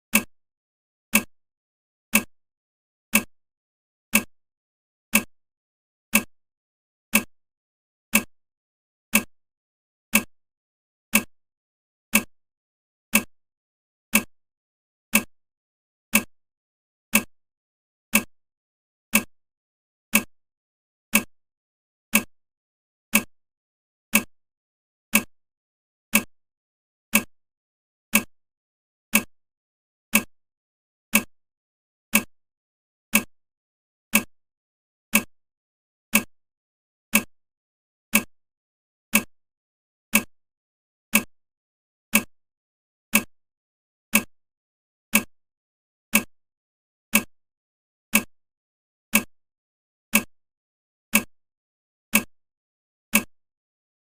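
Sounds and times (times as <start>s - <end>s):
timer ticking: 0.1s - 0.3s, 1.1s - 1.3s, 2.1s - 2.3s, 3.1s - 3.4s, 4.1s - 4.4s, 5.1s - 5.3s, 6.1s - 6.3s, 7.1s - 7.4s, 8.1s - 8.3s, 9.1s - 9.3s, 10.1s - 10.3s, 11.1s - 11.3s, 12.1s - 12.4s, 13.1s - 13.3s, 14.1s - 14.4s, 15.1s - 15.3s, 16.1s - 16.3s, 17.1s - 17.3s, 18.1s - 18.3s, 19.1s - 19.4s, 20.1s - 20.4s, 21.1s - 21.3s, 22.1s - 22.4s, 23.1s - 23.3s, 24.1s - 24.3s, 25.1s - 25.3s, 26.1s - 26.4s, 27.1s - 27.3s, 28.1s - 28.4s, 29.1s - 29.4s, 30.1s - 30.4s, 31.1s - 31.4s, 32.1s - 32.4s, 33.1s - 33.4s, 34.1s - 34.4s, 35.1s - 35.4s, 36.1s - 36.4s, 37.1s - 37.4s, 38.1s - 38.4s, 39.1s - 39.4s, 40.1s - 40.4s, 41.1s - 41.3s, 42.1s - 42.4s, 43.1s - 43.4s, 44.1s - 44.4s, 45.1s - 45.4s, 46.1s - 46.4s, 47.1s - 47.4s, 48.1s - 48.4s, 49.1s - 49.3s, 50.1s - 50.4s, 51.1s - 51.4s, 52.1s - 52.4s, 53.1s - 53.4s.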